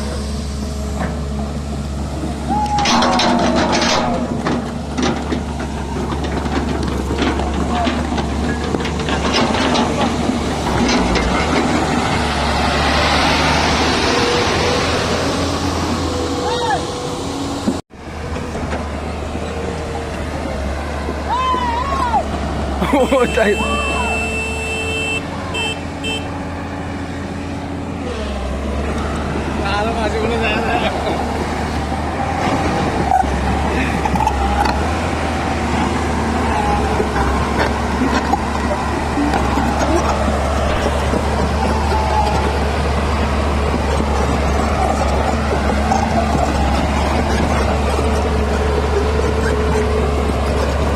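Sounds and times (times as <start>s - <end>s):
diesel engine running: 0.0s - 50.9s
faint voices: 36.3s - 43.2s.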